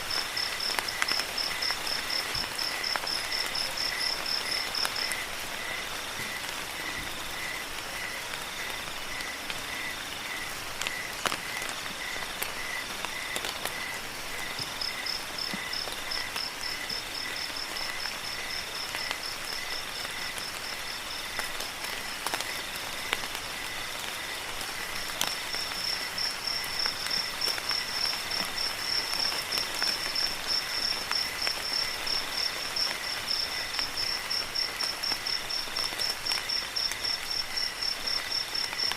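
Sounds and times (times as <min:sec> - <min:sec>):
crickets chirping: 0:00.0 - 0:38.9
rain hiss: 0:00.0 - 0:38.9.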